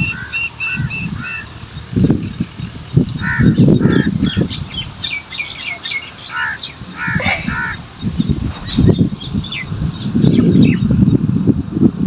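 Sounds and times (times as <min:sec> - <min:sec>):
low rumbling bursts: 0:00.0 - 0:12.0
small birds chirping: 0:00.0 - 0:12.0
crows cawing: 0:00.1 - 0:01.5, 0:03.2 - 0:04.5, 0:05.6 - 0:07.9.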